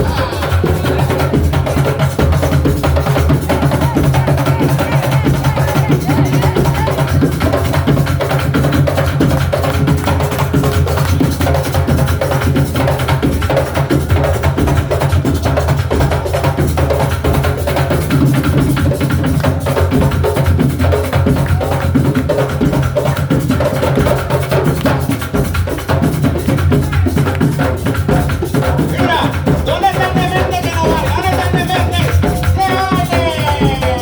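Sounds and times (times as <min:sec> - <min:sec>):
drum ensemble playing: 0:00.0 - 0:34.0.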